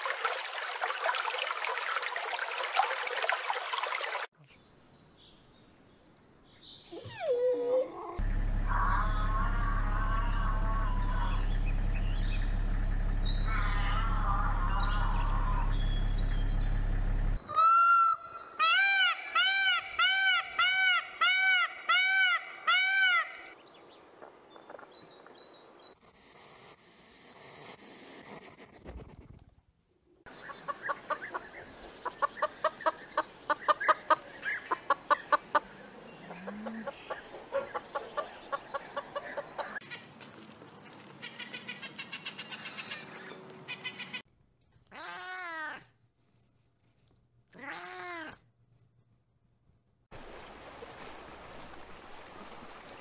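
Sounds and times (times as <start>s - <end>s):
peacock crying: 7.0s - 11.6s, 13.3s - 16.0s, 17.4s - 23.6s, 44.9s - 45.8s, 47.6s - 48.4s
drawn-out bird calls: 8.2s - 23.3s, 40.8s - 44.2s.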